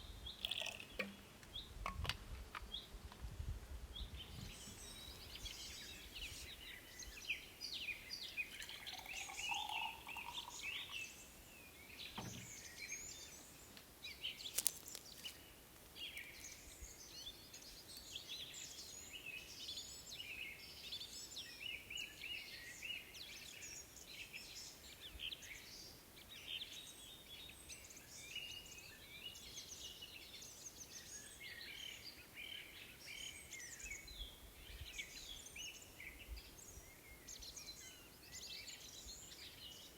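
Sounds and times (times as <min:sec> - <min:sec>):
songbirds chirping: 0:00.0 - 0:03.3, 0:03.9 - 0:39.9.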